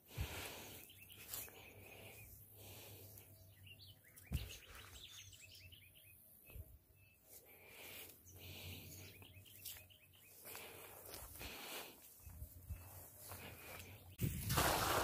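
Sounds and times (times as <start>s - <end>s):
bird high chirps: 3.2s - 7.4s.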